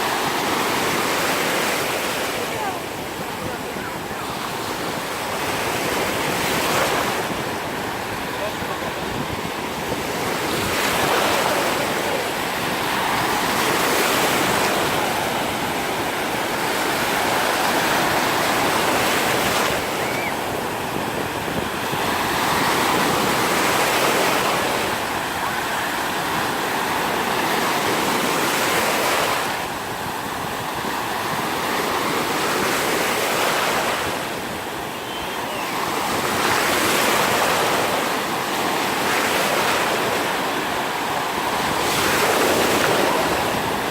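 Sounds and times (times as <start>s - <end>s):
waves breaking on beach: 0.0s - 43.9s
wind buffeting microphone: 2.9s - 28.5s.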